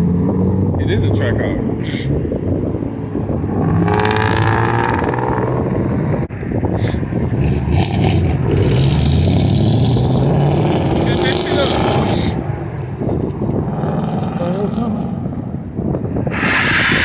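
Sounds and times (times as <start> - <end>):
car engine revving: 3.2 - 6.2, 7.3 - 17.0.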